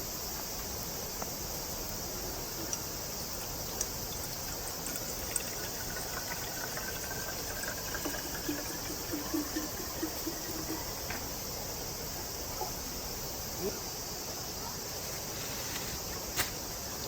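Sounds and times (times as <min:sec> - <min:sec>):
insects chirring: 0:00.0 - 0:17.0
water trickling and gurgling: 0:01.7 - 0:13.2.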